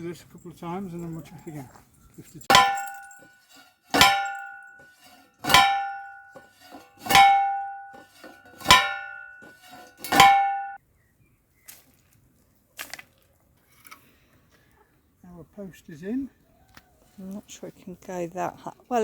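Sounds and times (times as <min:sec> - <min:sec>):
post driver clanging on post: 0:02.4 - 0:10.8.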